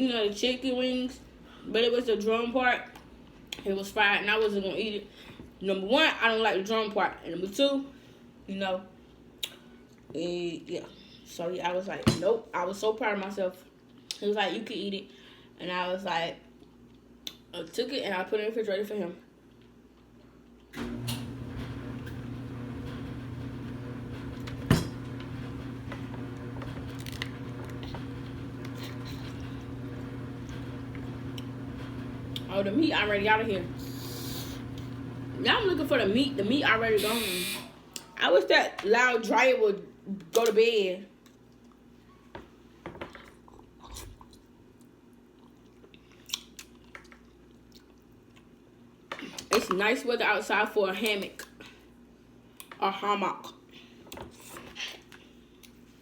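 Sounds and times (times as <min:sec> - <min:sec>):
clothes dryer humming: 0:20.8 - 0:38.2.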